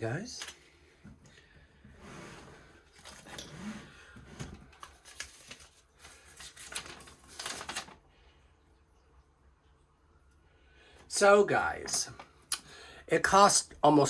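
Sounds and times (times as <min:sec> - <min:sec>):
packaging rustling: 0:04.4 - 0:08.0.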